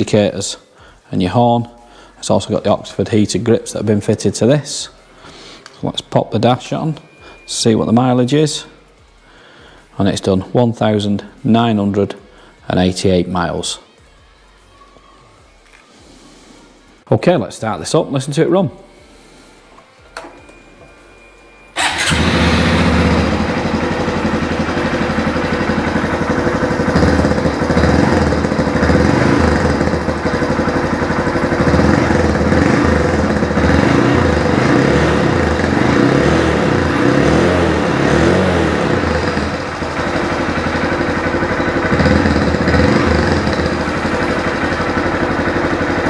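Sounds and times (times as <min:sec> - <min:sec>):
motorcycle engine starting and running: 0:21.7 - 0:46.0.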